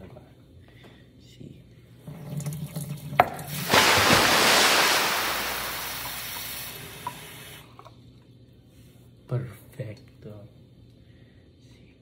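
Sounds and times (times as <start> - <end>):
faucet running water into a cup: 2.1 - 7.7.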